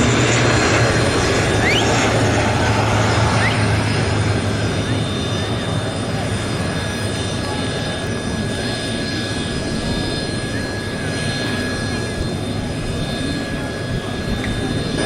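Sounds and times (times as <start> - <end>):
high-pitched whine: 0.0 - 4.4
turbine aircraft engines rushing: 0.0 - 15.0.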